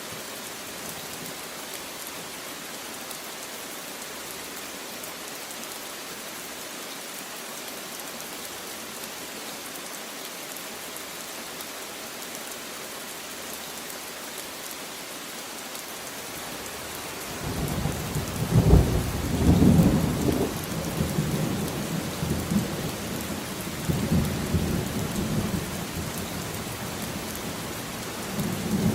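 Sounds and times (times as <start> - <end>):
rain hissing: 0.0 - 28.9
low rumble of thunder: 17.5 - 22.8.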